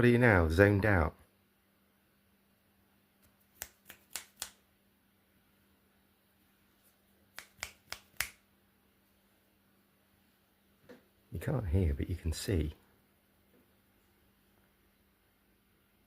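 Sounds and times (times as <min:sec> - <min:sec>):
finger snaps: 0:03.2 - 0:04.6, 0:07.3 - 0:08.4.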